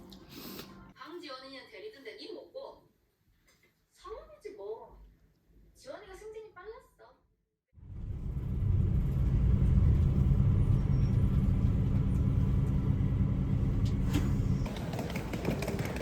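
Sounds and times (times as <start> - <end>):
motor vehicle rumble: 7.8 - 15.9.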